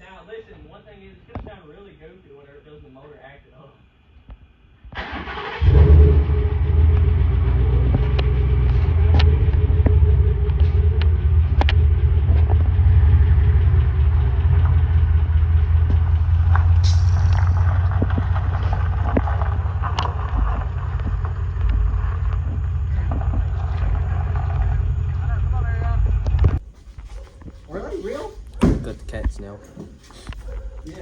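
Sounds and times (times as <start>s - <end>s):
deep exhaust rumble: 5.0s - 26.7s.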